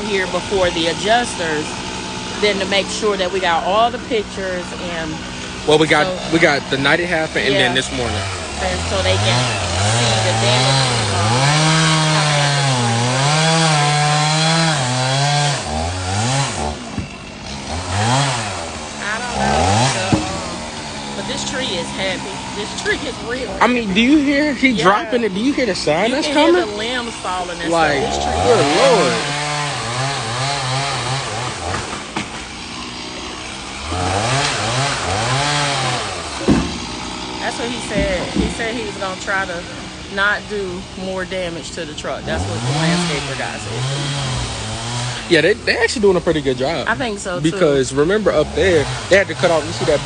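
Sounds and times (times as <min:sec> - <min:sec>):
chainsaw cutting and revving: 0:00.0 - 0:50.0
wood cracking: 0:28.2 - 0:38.8.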